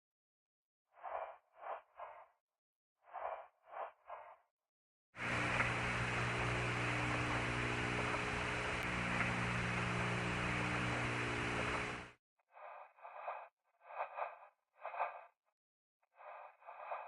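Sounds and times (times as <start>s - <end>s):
electrical hum: 5.2s - 12.1s
radio static hiss: 5.2s - 12.1s.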